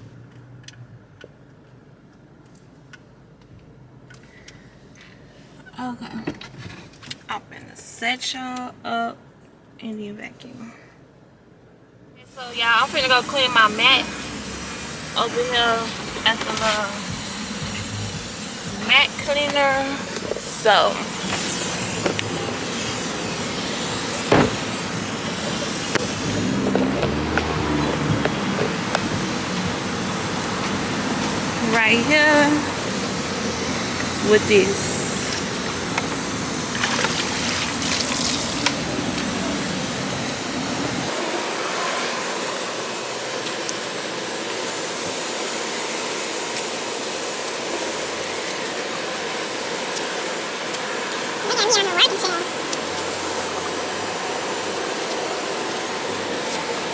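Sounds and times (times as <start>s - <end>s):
traffic noise: 0.0s - 8.8s, 10.4s - 56.9s
machine noise: 12.4s - 56.9s.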